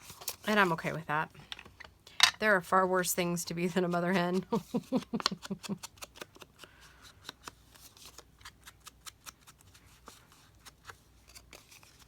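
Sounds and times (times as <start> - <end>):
paper cards tapping and flicking: 4.2 - 12.0.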